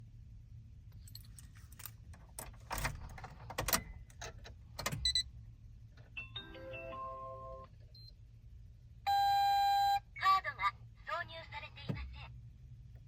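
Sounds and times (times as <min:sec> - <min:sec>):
car keys jangling: 0:00.9 - 0:05.0.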